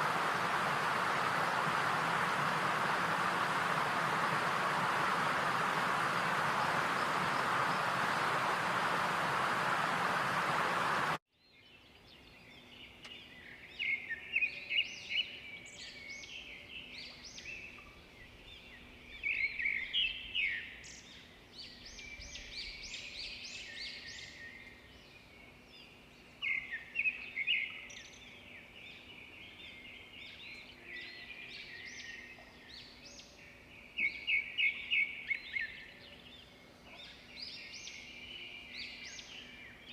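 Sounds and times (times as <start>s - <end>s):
loud rushing hiss: 0.0s - 11.2s
birds chirping and trilling: 0.0s - 20.4s.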